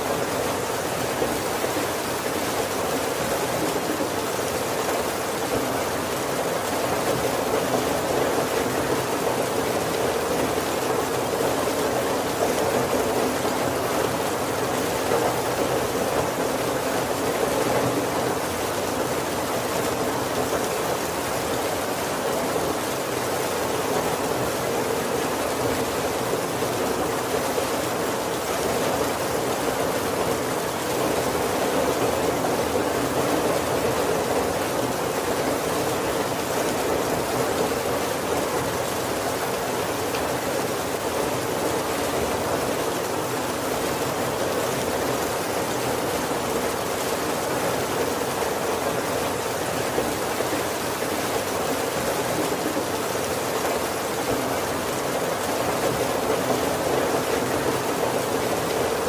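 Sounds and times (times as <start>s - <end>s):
heavy rain on roof and windows: 0.0s - 59.0s.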